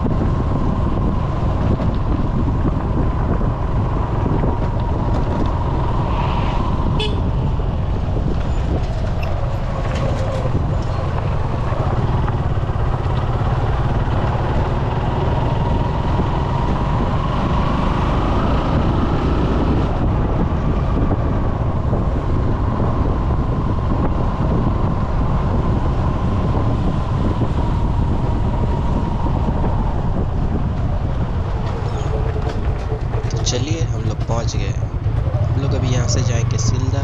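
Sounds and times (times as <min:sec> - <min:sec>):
wind buffeting microphone: 0:00.0 - 0:37.0
motorcycle engine running: 0:10.4 - 0:19.1, 0:19.7 - 0:37.0.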